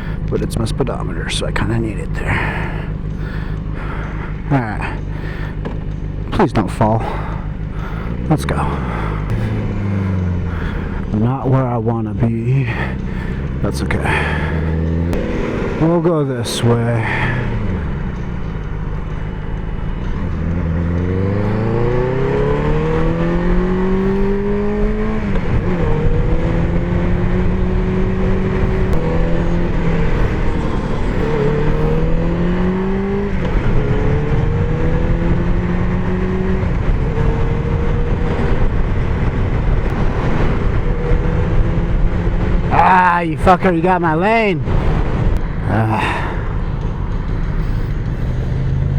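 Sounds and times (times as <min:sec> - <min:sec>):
motorcycle engine accelerating: 0:00.0 - 0:48.9
wind noise: 0:21.5 - 0:42.8.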